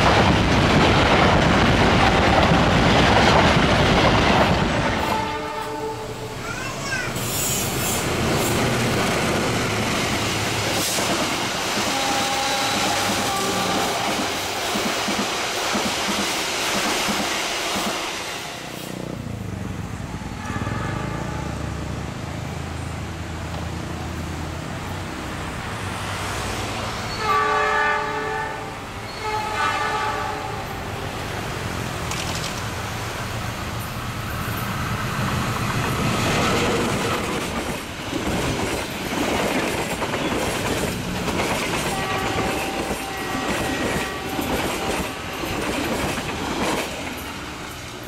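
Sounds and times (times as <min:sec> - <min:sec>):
passenger train passing at speed: 0:00.0 - 0:48.0
train horn blasts: 0:04.8 - 0:06.4, 0:11.8 - 0:14.2, 0:20.2 - 0:21.7, 0:27.1 - 0:30.8, 0:41.8 - 0:45.2.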